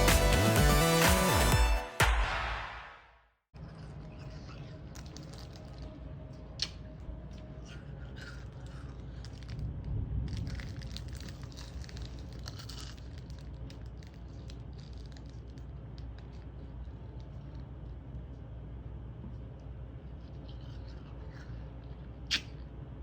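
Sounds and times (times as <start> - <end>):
low storm rumble: 9.5 - 12.4.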